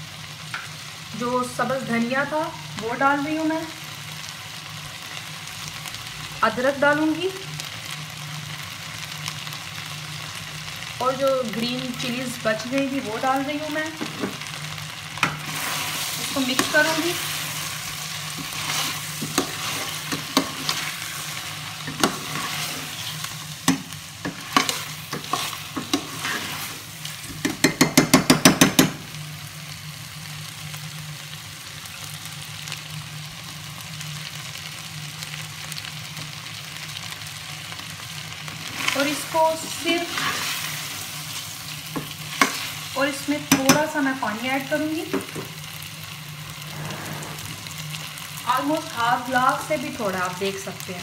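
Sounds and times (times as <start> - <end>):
food sizzling in hot oil: 0.0 - 51.0
metal spoon scraping a pot: 18.4 - 21.0, 21.8 - 26.8.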